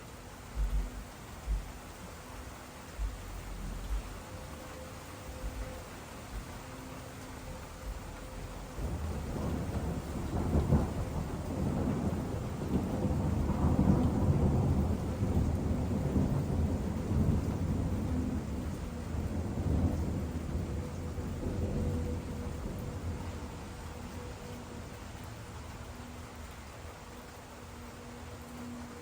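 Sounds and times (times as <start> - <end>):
rolling thunder: 3.0 - 4.6, 5.3 - 24.8.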